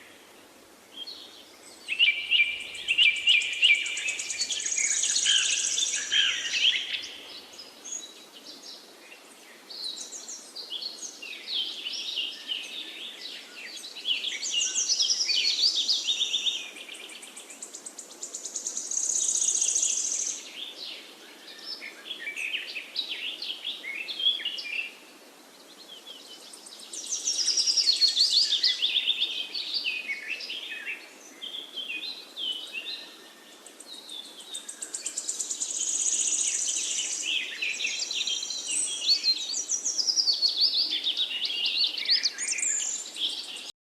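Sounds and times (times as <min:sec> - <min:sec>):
faint steady background hiss: 0:00.0 - 0:43.7
forest birds singing: 0:00.0 - 0:43.7.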